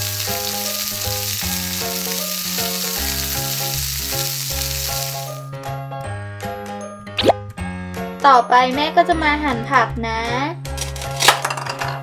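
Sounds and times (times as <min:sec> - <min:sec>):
egg sizzling in a pan: 0:00.0 - 0:05.5
background music with plucked melody: 0:00.0 - 0:12.0.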